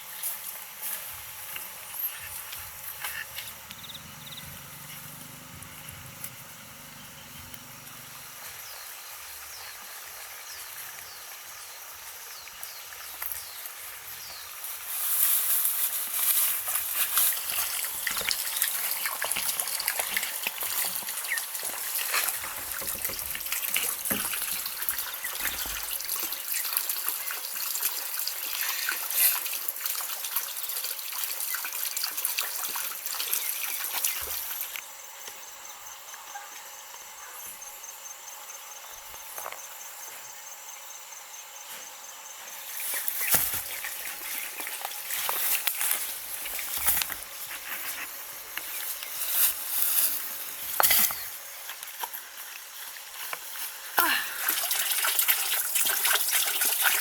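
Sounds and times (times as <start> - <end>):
water trickling and splashing: 8.5 - 34.8, 42.7 - 57.0.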